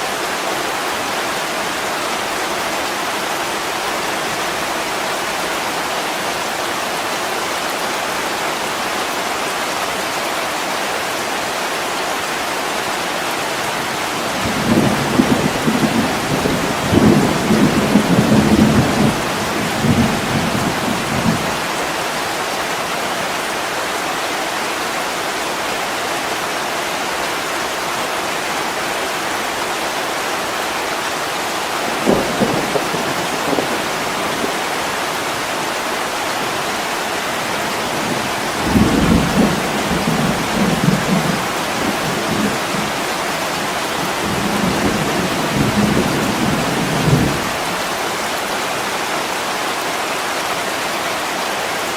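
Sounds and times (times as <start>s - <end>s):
heavy rain on window glass: 12.1s - 25.1s, 30.2s - 51.9s
thunder rumbling: 14.4s - 21.7s, 31.9s - 34.6s, 37.8s - 47.8s.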